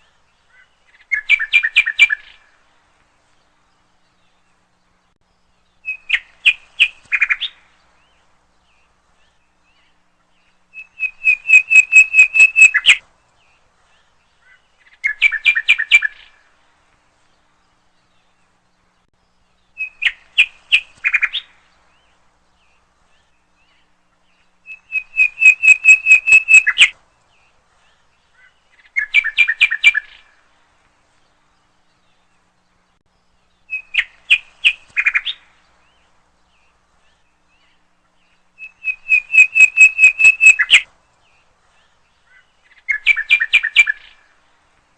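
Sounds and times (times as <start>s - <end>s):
songbird singing: 0.0s - 44.9s.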